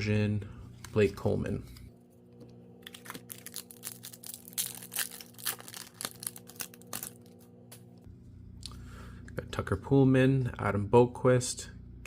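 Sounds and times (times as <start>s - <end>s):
foil wrapper tearing and crinkling: 2.8s - 7.6s.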